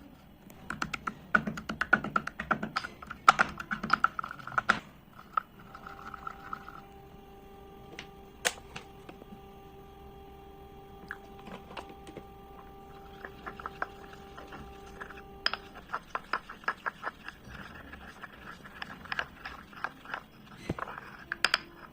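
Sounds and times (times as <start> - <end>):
slate pencils crunching when chewed: 13.2 - 21.9.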